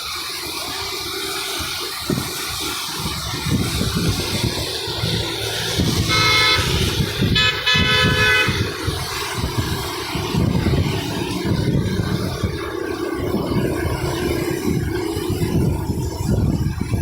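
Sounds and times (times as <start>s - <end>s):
traffic rumble: 0.0s - 17.0s
vehicle horn honking: 5.9s - 8.9s.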